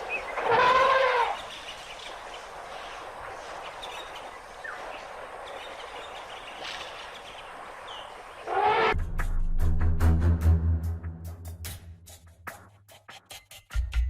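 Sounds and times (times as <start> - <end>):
loud animal call: 0.3 - 1.4, 8.4 - 9.0.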